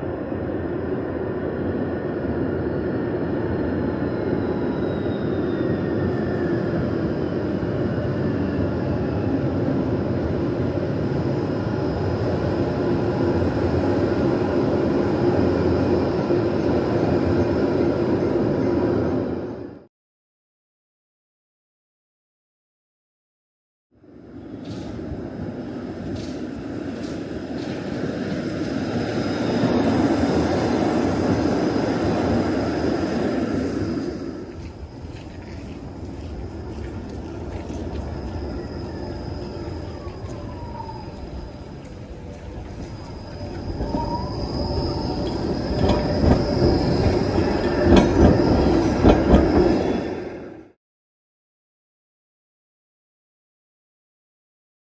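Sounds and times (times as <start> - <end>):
tram rumbling along rails: 0.0 - 19.8, 24.0 - 50.8
high-pitched wheel squeal: 4.3 - 7.4, 37.6 - 50.6
thin high whine: 24.4 - 50.7
wheels clacking over rail joints: 34.6 - 50.4.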